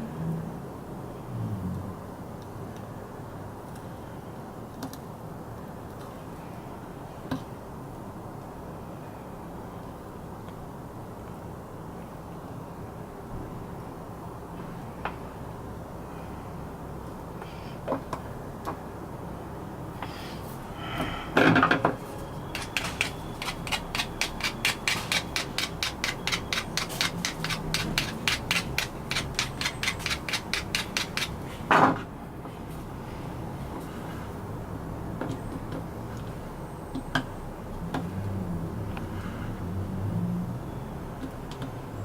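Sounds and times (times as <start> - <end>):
file scraping strokes: 22.5 - 31.7.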